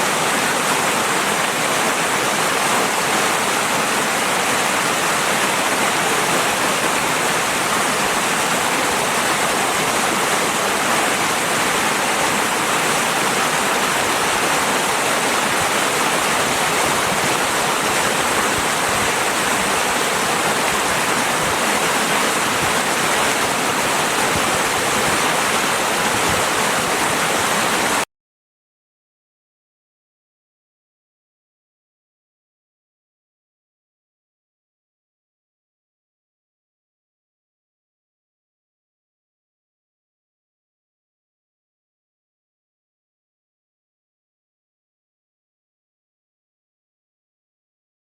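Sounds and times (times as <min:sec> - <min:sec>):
river water flowing: 0:00.0 - 0:28.0.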